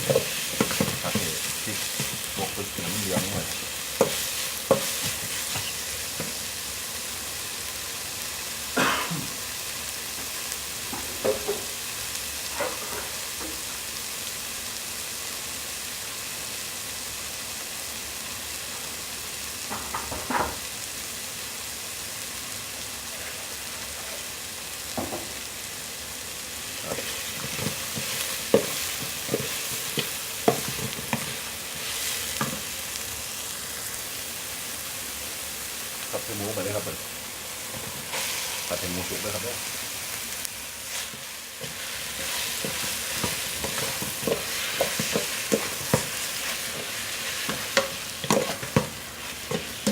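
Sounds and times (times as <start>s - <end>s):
utensil stirring against pot: 0.0s - 6.5s, 26.8s - 32.8s, 40.7s - 49.9s
curry paste sizzling in oil: 0.0s - 49.9s.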